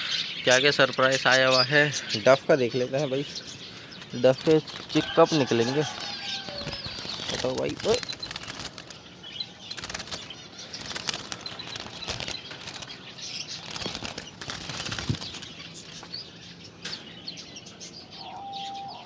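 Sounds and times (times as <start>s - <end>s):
birds fluttering wings: 3.2s - 17.0s.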